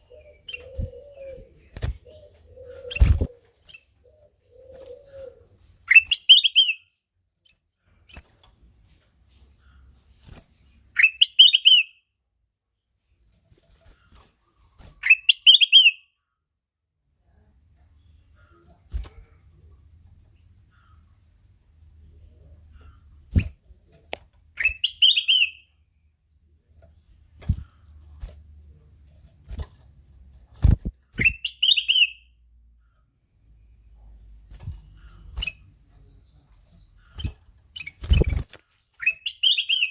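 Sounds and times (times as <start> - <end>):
bulbul calling: 0.0 - 6.9, 24.6 - 25.7, 30.6 - 32.3, 34.6 - 39.9.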